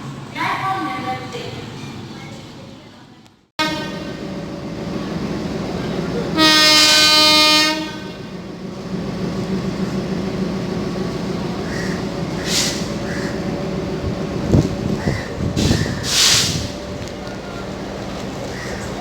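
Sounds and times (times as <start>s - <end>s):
train horn blast: 3.6s - 4.4s, 6.3s - 8.5s
train running noise: 3.6s - 19.0s.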